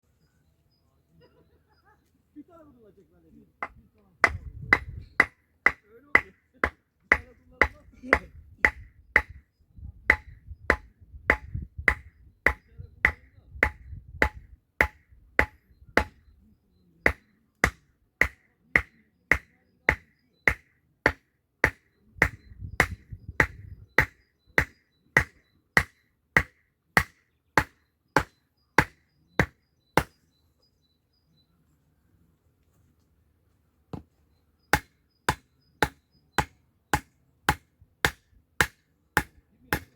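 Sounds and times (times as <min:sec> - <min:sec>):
hammer striking: 0:10.1 - 0:16.2, 0:34.8 - 0:39.9.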